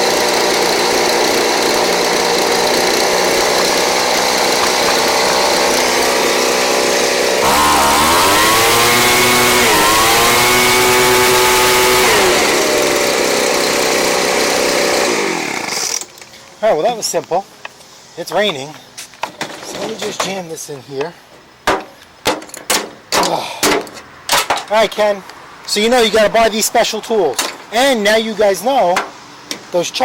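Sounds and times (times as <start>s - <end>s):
leaf blower engine idling and revving: 0.0s - 16.2s.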